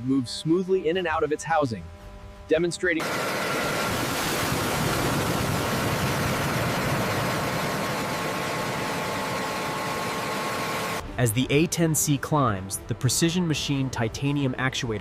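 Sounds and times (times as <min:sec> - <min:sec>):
jet engine rush and whine: 0:03.0 - 0:11.0.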